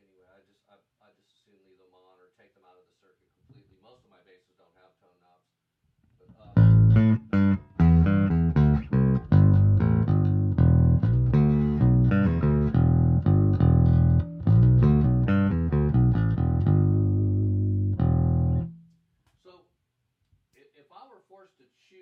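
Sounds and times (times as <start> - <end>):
plucked electric bass line: 6.4 - 18.8.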